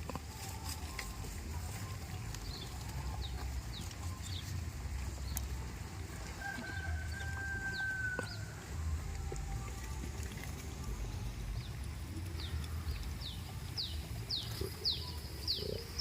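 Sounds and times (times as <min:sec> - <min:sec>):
distant rooster crowing: 0:06.1 - 0:08.8
low rumble: 0:08.6 - 0:15.0.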